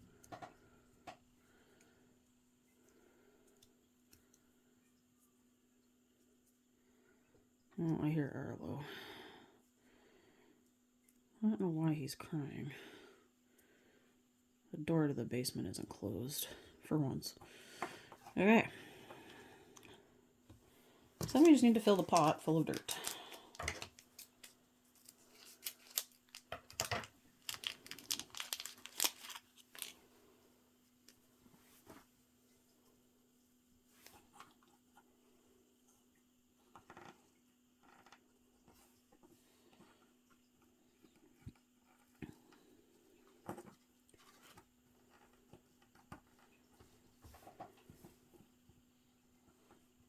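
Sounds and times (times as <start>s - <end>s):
faint steady hum: 0.0s - 50.0s
plastic parts crinkling and clicking: 21.2s - 30.0s.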